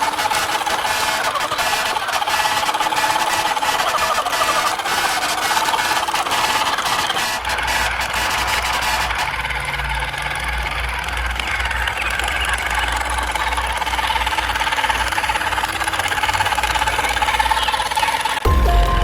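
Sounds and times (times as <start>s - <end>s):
model vehicle motor whine: 0.0s - 18.5s
low rumble: 18.5s - 19.0s.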